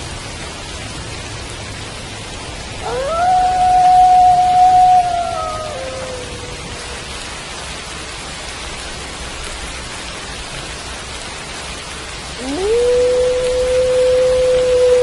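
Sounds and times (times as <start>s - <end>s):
steady rain: 0.0s - 15.0s
wolf howling: 2.8s - 7.1s, 12.4s - 15.0s.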